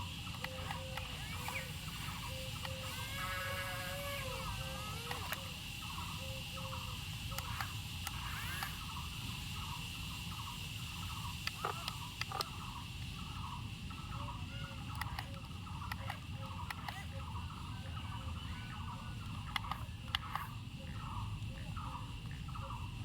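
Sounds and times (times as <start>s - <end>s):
insect drone with pulsing chirp: 0.0s - 23.0s
sharp clicks: 0.1s - 9.1s, 10.3s - 13.3s, 14.0s - 17.3s, 18.7s - 20.6s.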